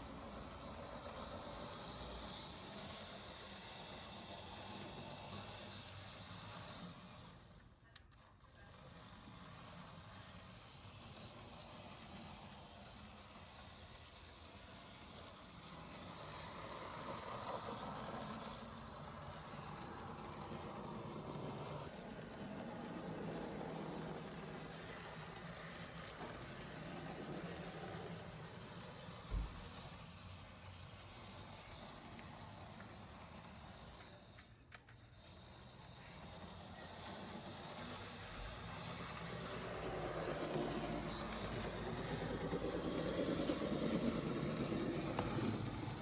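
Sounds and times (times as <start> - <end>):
model train motor whirring: 0.0 - 46.0
wheels running on rails: 0.0 - 46.0.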